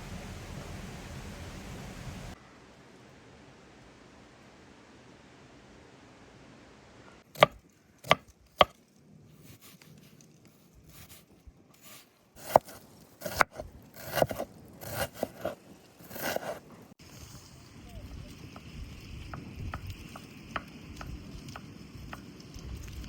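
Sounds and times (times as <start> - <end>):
knife chopping on wooden board: 7.4 - 8.8, 12.4 - 16.6.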